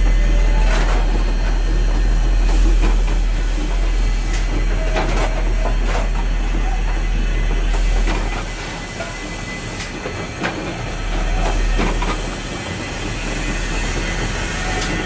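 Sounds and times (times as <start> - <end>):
steam locomotive rumble: 0.0 - 15.0.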